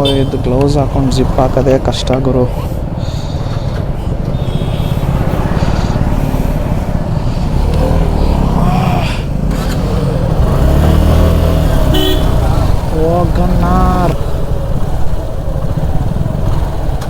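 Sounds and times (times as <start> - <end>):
motorcycle engines running: 0.0 - 17.0
deeper engine note: 3.9 - 17.0.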